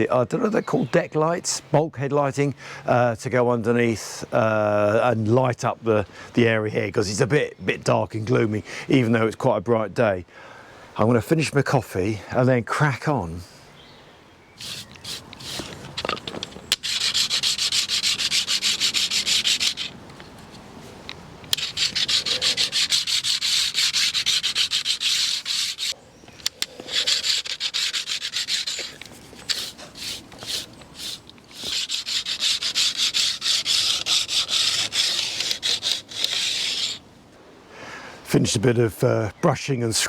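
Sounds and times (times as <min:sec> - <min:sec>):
brush scrubbing: 0:14.6 - 0:15.8, 0:16.7 - 0:20.0, 0:21.5 - 0:26.0, 0:26.9 - 0:37.0.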